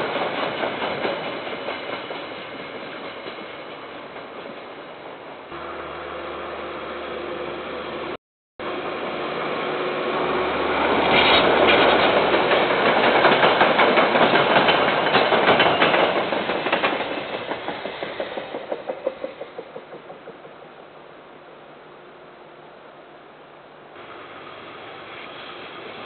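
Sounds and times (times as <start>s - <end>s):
train passing: 0.0s - 26.0s
wheel clatter on rails: 11.0s - 20.6s.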